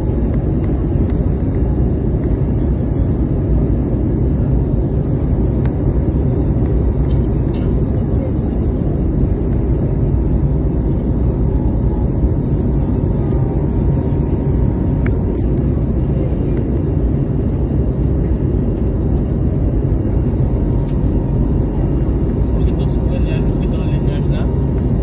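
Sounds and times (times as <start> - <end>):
airliner cabin engine rumble: 0.0 - 25.0.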